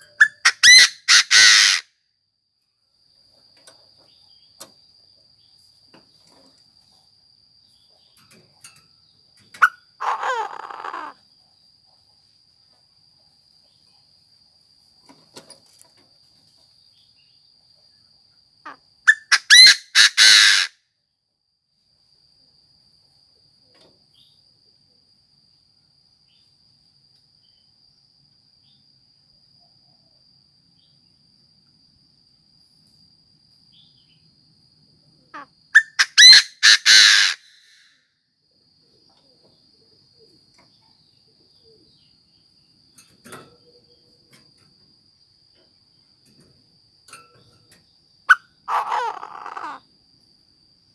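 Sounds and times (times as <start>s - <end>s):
bird calling harsh rapid notes: 0.0s - 1.8s, 19.1s - 20.7s, 35.8s - 37.8s, 48.7s - 49.8s.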